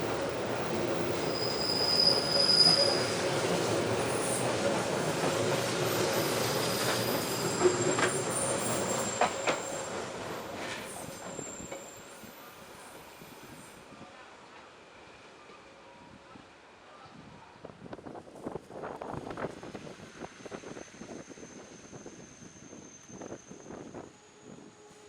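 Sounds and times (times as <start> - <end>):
electric train running on rails: 0.0 - 16.8, 17.6 - 25.0
faint high wheel squeal: 0.6 - 4.6, 5.8 - 13.9, 20.3 - 25.0.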